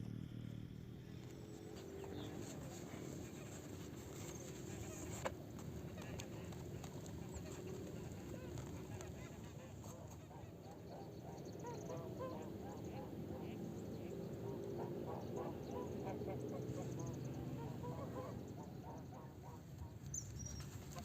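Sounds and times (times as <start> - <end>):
waterfowl honking: 5.8 - 19.9.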